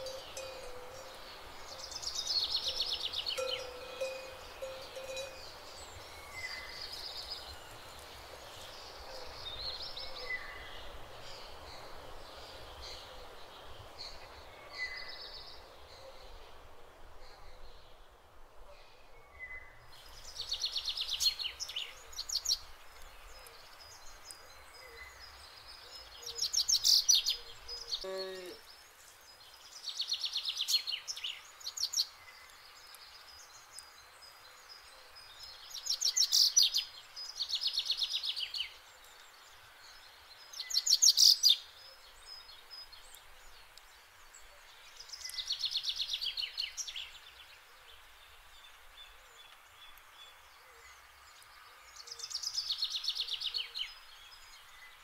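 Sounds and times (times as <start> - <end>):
songbird trilling: 0.0 - 5.6
faint outdoor hiss: 0.0 - 55.0.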